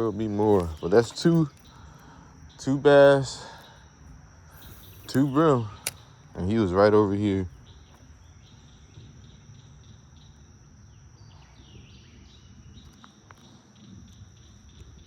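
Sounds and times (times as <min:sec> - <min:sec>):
insect drone with chirps: 0:00.0 - 0:15.0
faint ticks: 0:12.8 - 0:15.0.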